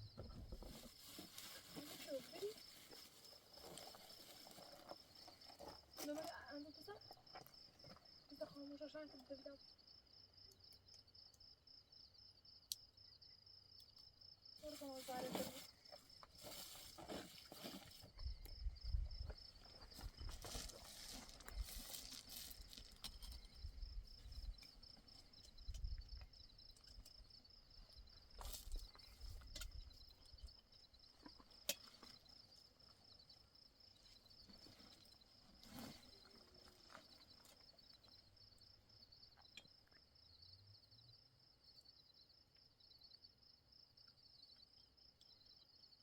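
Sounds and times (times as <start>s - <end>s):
crickets chirping: 0.0s - 46.0s.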